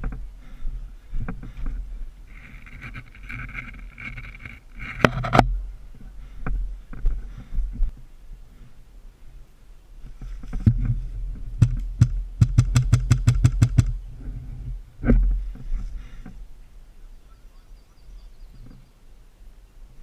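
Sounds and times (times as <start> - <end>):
low rumble of movement: 0.0 - 17.0
wind on microphone: 10.0 - 17.4.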